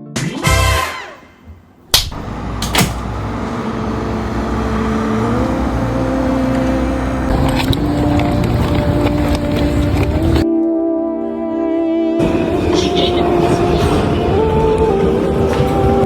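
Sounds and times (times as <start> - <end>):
train running with rising motor tone: 0.8 - 10.4, 12.2 - 16.0
sharp click and knock: 1.9 - 3.1.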